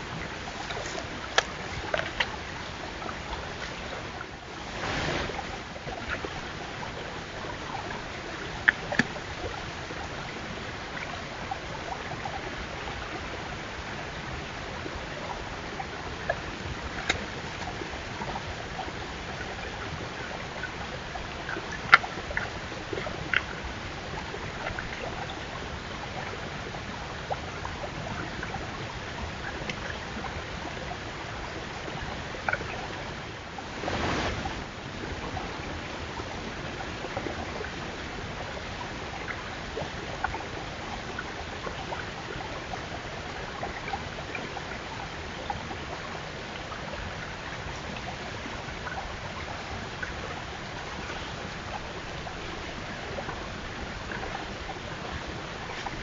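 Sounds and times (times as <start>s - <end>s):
outdoor hiss: 33.7s - 34.6s.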